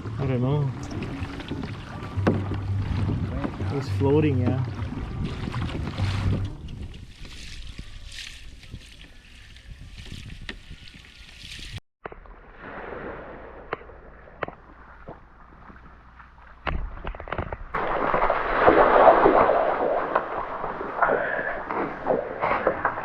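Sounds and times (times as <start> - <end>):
water sloshing around kayak: 0.0 - 11.8.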